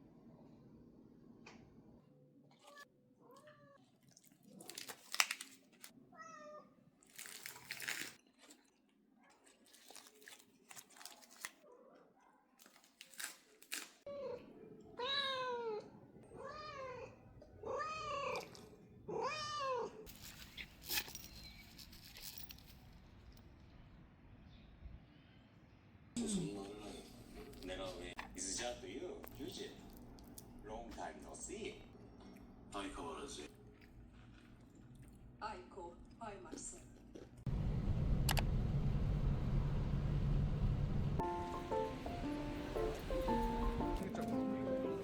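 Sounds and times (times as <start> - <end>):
cat meowing: 2.6 - 3.8, 6.1 - 6.8, 14.1 - 20.0
rustling: 20.1 - 23.4.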